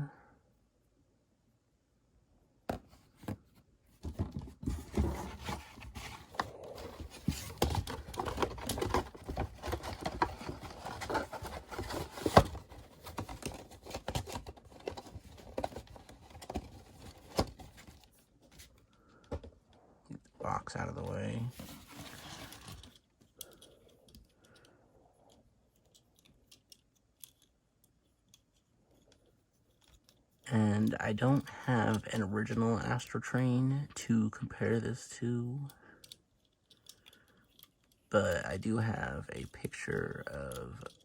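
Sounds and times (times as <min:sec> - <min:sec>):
cardboard and plastic packaging rustling: 0:02.7 - 0:19.6, 0:21.2 - 0:23.7.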